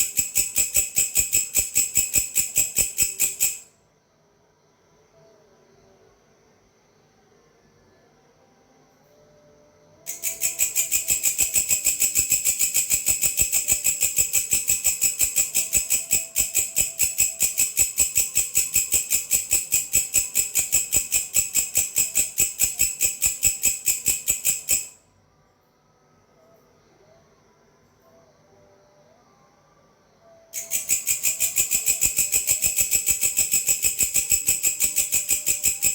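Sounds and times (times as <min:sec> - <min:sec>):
grasshopper chirping: 0:00.0 - 0:03.7, 0:10.1 - 0:25.0, 0:30.6 - 0:35.9.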